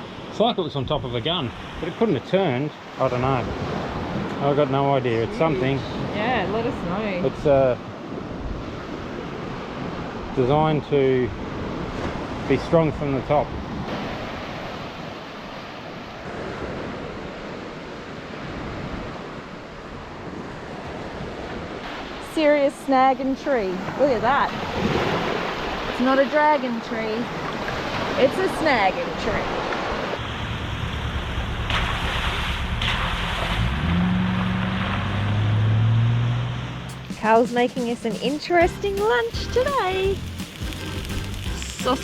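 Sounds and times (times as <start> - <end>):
ocean surf washing onto beach: 0.0 - 35.6, 36.8 - 42.0
low engine hum: 30.2 - 37.4.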